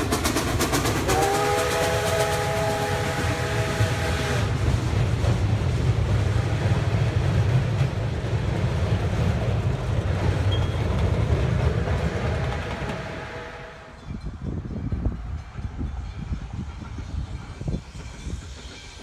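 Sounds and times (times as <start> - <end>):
train rumbling on rails: 0.0 - 19.0
steam whistle chord: 1.0 - 4.5, 12.7 - 14.0.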